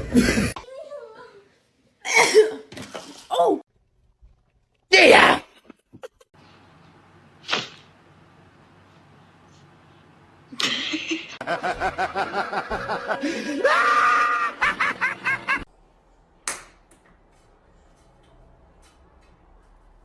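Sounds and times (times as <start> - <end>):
person laughing hard: 10.6 - 15.7.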